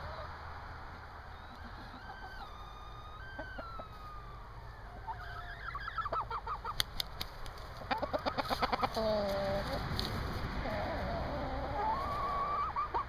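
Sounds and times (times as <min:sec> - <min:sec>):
hens clucking: 0:00.0 - 0:13.0
sharp clicks: 0:06.8 - 0:07.7
wind rumbling on microphone: 0:08.6 - 0:12.7.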